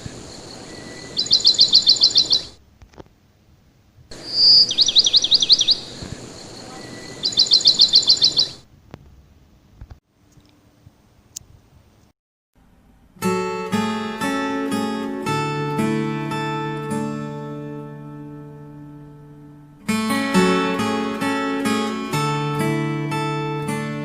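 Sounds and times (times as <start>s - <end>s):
songbird trilling: 0.0s - 2.6s, 4.1s - 8.6s
steady hiss: 0.0s - 2.6s, 3.4s - 8.6s.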